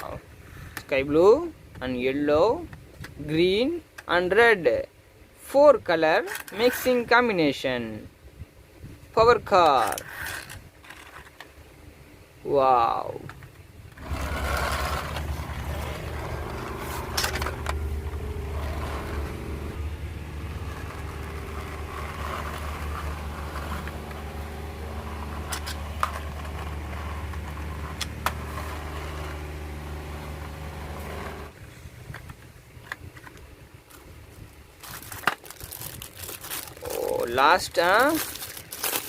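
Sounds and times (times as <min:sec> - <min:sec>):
toy car motor humming: 0:14.0 - 0:31.6.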